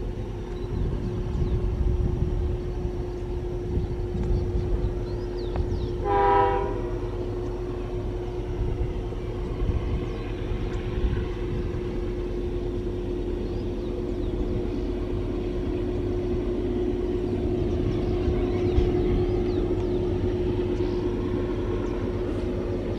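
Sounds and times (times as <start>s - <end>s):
freight train rumbling: 0.0s - 22.9s
locomotive horn blast: 5.8s - 7.4s.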